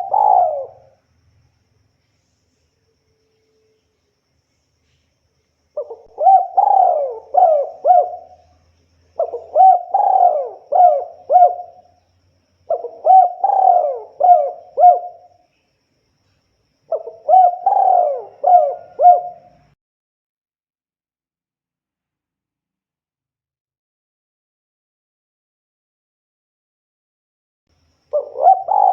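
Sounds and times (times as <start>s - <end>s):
dove cooing: 0.0s - 1.0s, 5.8s - 8.6s, 9.2s - 11.9s, 12.7s - 15.3s, 16.9s - 19.8s, 28.1s - 28.9s.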